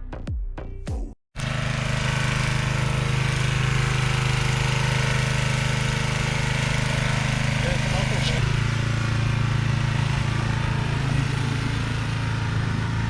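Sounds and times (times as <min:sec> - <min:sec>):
car engine idling choppily: 0:02.8 - 0:13.0.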